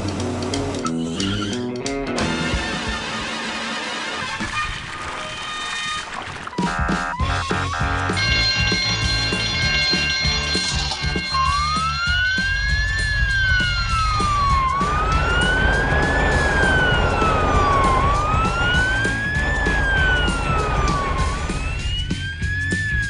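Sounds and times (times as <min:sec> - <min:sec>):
background music with beat: 0:06.5 - 0:23.0
wailing siren: 0:07.2 - 0:23.0.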